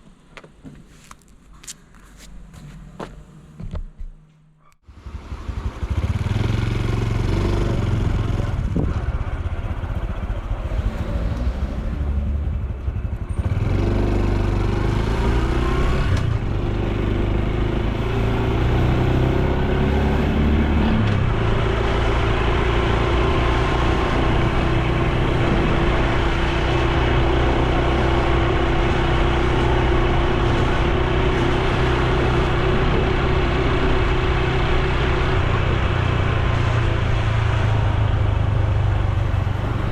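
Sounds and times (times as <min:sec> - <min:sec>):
motorcycle engine running: 0:04.8 - 0:19.8.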